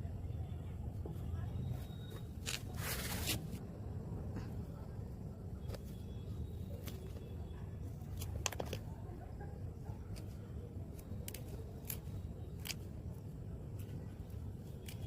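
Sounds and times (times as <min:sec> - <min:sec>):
scissors snipping stems: 0:10.1 - 0:13.0, 0:13.8 - 0:15.0.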